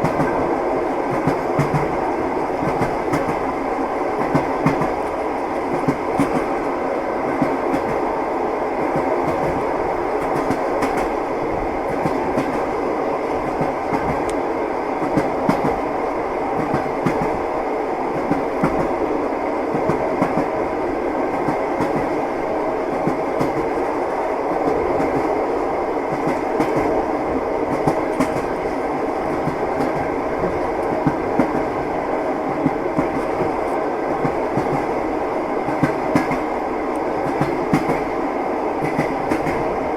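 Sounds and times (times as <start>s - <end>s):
train rolling rumble: 0.0s - 39.9s.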